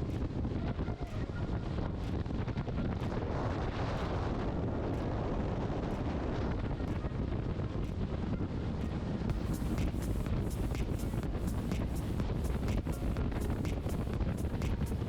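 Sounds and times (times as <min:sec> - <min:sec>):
wind buffeting microphone: 0:00.0 - 0:15.0
boat noise: 0:09.3 - 0:15.0.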